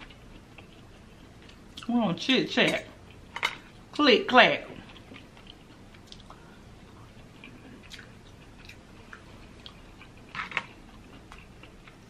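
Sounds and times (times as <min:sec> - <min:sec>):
person chewing: 0:00.0 - 0:01.9, 0:04.8 - 0:12.0.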